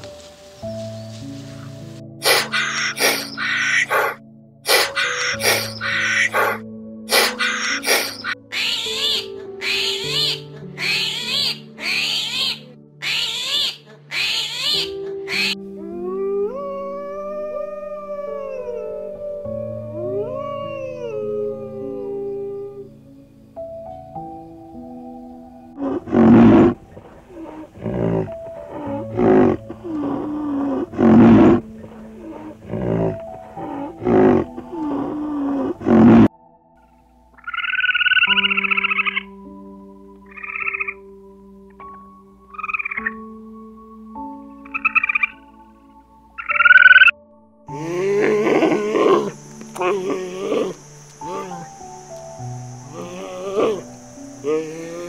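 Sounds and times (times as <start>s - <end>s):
soft instrumental music: 0.0s - 55.0s
animal calling: 1.5s - 22.9s, 25.8s - 36.3s, 37.4s - 39.4s, 40.3s - 41.1s, 41.8s - 43.3s, 44.6s - 45.6s, 46.4s - 55.0s
short faint pitched calls: 2.2s - 15.6s, 47.7s - 55.0s.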